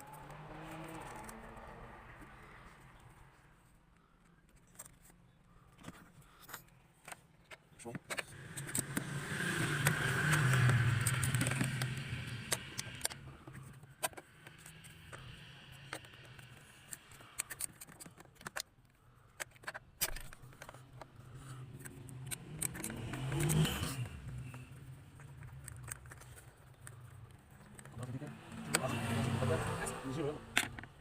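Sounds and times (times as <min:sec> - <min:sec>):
car engine humming: 0:00.0 - 0:03.3, 0:08.3 - 0:17.4, 0:20.5 - 0:31.0
clicks and scrapes: 0:00.0 - 0:31.0.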